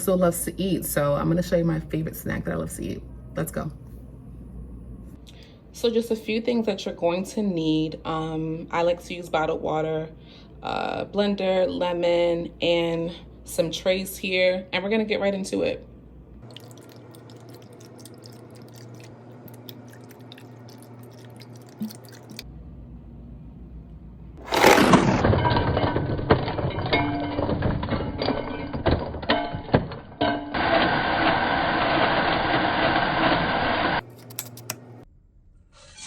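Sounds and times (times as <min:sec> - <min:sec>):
blender crushing ice: 0:24.4 - 0:25.4, 0:30.5 - 0:34.0.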